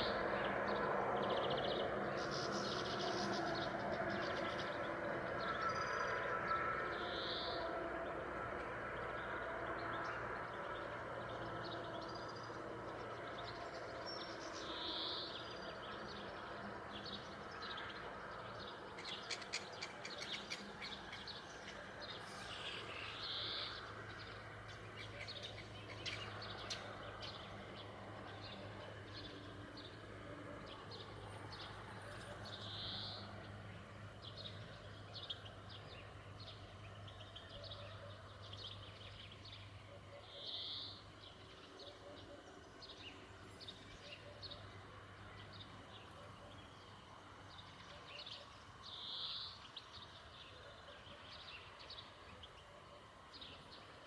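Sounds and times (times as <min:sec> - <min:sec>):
birds chirping and calling: 0:10.6 - 0:30.0, 0:30.6 - 0:33.6, 0:34.2 - 0:53.9.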